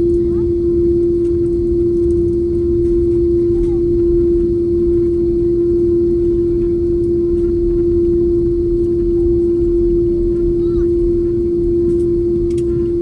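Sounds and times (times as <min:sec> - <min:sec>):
jet cabin droning hum: 0:00.0 - 0:13.0.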